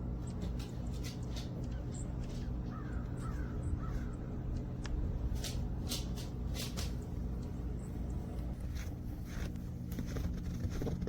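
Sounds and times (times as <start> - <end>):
steady low hum: 0.0 - 11.0
crow cawing: 2.6 - 4.4.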